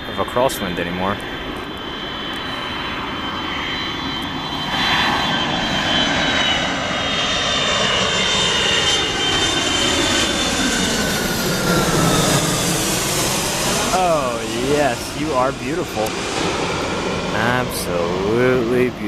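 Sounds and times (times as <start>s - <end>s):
jet airliner engines passing overhead: 0.0s - 19.0s
high whine sliding down in pitch: 10.3s - 19.0s.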